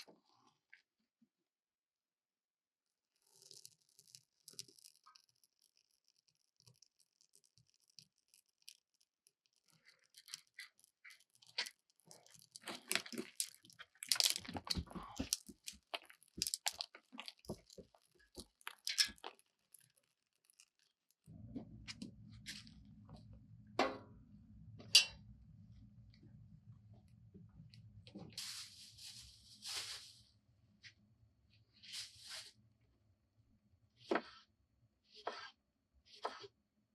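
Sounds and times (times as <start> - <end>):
low steady hum: 21.3 - 29.6
rustling and scraping of handling: 28.0 - 31.0, 31.7 - 32.6.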